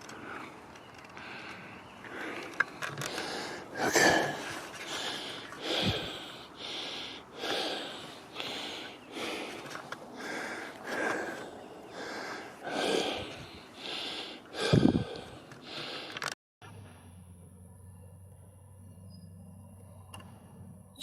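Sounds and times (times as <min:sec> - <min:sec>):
man breathing hard: 0:00.0 - 0:16.4.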